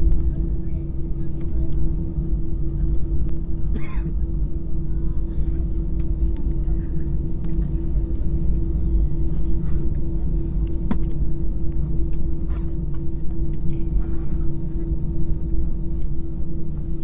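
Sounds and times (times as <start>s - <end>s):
constant cabin hum: 0.0s - 17.0s
low aircraft engine rumble: 0.0s - 17.0s.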